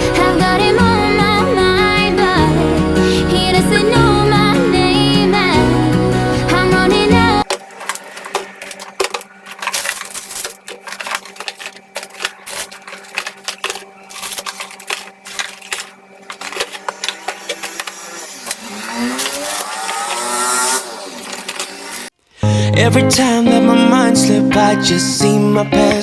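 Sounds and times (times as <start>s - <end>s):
pop song with singing: 0.0s - 7.5s, 22.4s - 26.0s
household items clattering: 0.0s - 22.1s.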